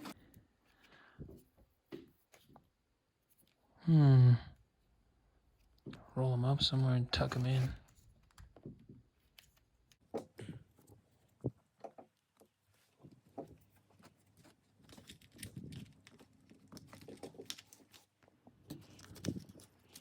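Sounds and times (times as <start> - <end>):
plastic parts clicking and rustling: 13.4 - 20.0.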